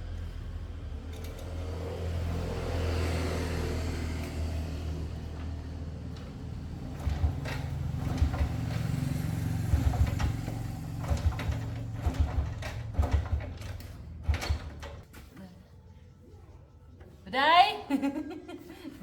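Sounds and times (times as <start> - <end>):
motorbike engine running: 1.2 - 15.0
parts clicking and knocking: 5.0 - 15.3.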